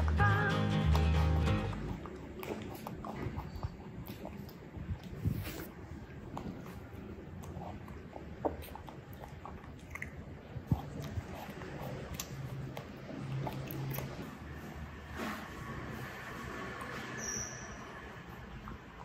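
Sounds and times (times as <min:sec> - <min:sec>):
mouth clicks and smacks: 0:00.0 - 0:14.6
monkey chewing: 0:00.0 - 0:15.0.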